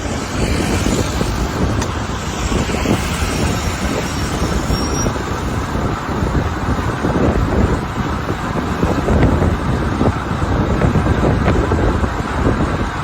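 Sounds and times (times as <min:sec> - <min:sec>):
city traffic: 0:00.0 - 0:13.0
wind buffeting microphone: 0:00.0 - 0:13.0.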